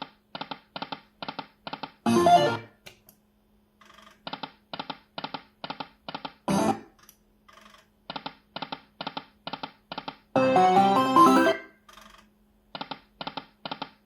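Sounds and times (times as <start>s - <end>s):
slot machine jingle: 2.1s - 2.7s, 10.4s - 11.8s.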